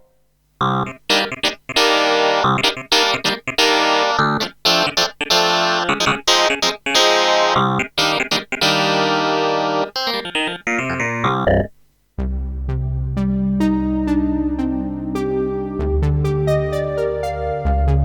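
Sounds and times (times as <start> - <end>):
electric piano chords: 0.6 - 11.7.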